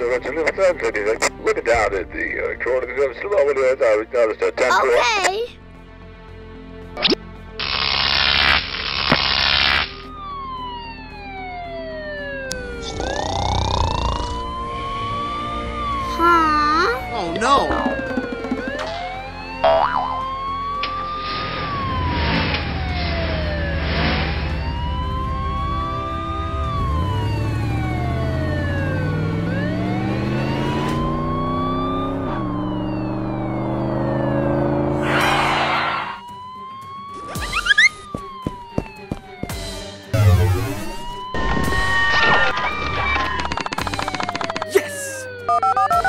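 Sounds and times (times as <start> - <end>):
cartoon siren wailing: 10.1 - 46.0
vehicle engine speeding up: 12.5 - 20.5, 21.2 - 36.2
gliding whistle tone: 37.2 - 38.1.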